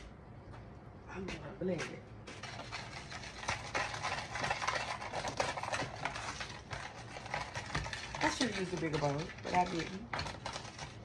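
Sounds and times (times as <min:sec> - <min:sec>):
utensil scraping a bowl: 0:02.3 - 0:11.0.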